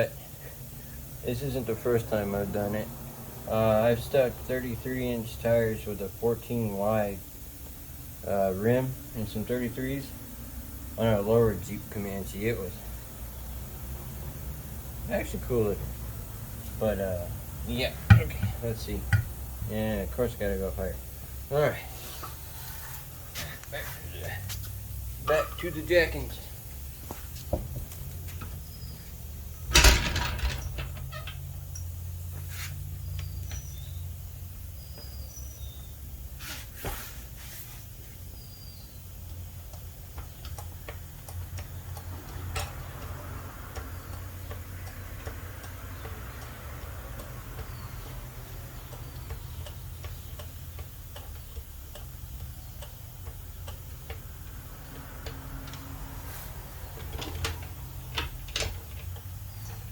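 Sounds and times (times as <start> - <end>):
metallic clicks and knocks: 29.6 - 31.9.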